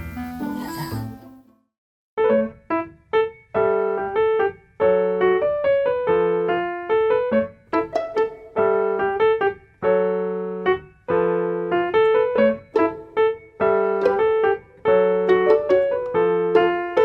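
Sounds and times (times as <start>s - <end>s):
piano melody: 2.2s - 17.0s.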